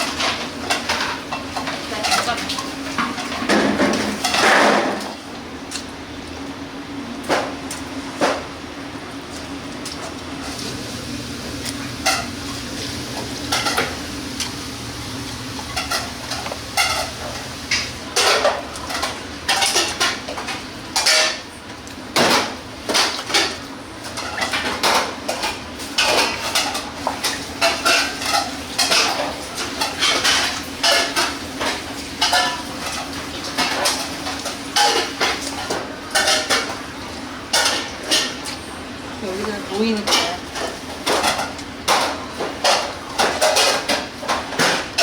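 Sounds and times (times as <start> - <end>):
metal pans clanking and scraping: 0.0 - 5.1, 11.8 - 14.6, 15.5 - 21.4, 22.2 - 36.9, 37.5 - 38.4, 39.4 - 45.0
steady low hum: 10.2 - 19.4.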